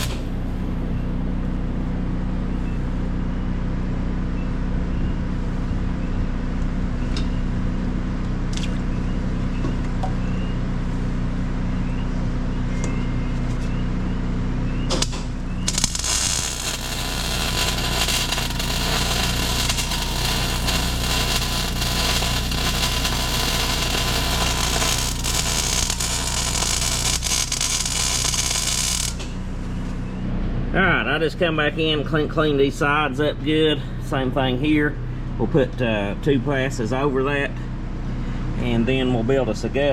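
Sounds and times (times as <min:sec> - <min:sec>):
welding arc crackling hiss: 0:00.0 - 0:00.5, 0:14.9 - 0:30.0
engine hum: 0:00.0 - 0:39.9.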